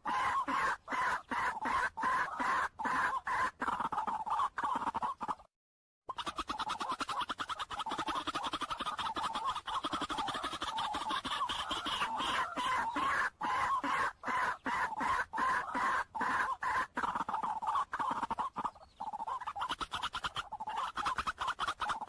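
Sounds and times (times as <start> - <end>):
bird clucking calls: 0.0 - 5.5, 6.1 - 22.0.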